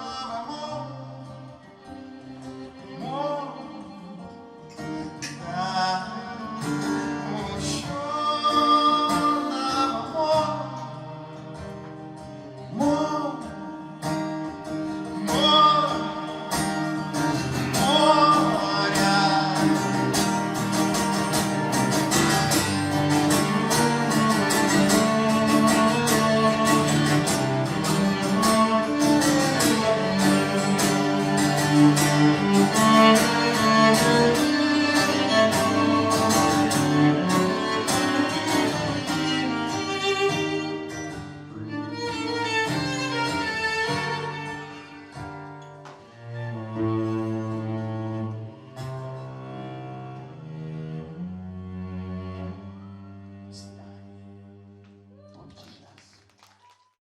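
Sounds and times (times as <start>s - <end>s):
man singing wordless melody: 0.0s - 1.3s, 5.2s - 11.3s, 12.7s - 13.5s, 15.2s - 16.5s, 17.7s - 20.1s
acoustic guitar playing: 0.0s - 55.1s
cello playing: 0.0s - 55.1s.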